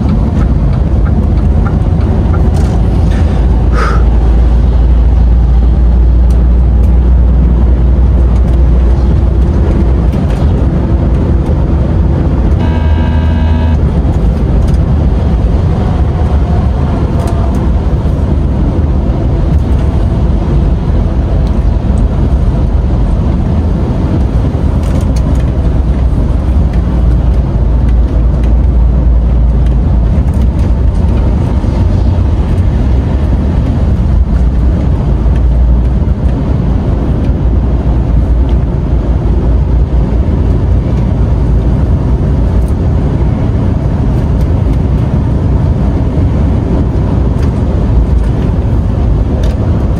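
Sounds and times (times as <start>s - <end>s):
truck engine rumble: 0.0s - 49.9s
short pitched tone: 12.6s - 13.8s.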